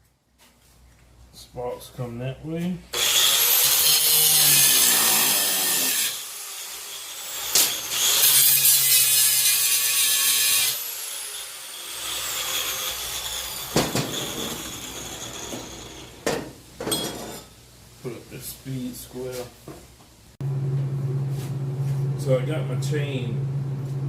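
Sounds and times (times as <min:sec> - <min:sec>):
angle grinder cutting steel: 0:03.0 - 0:16.2.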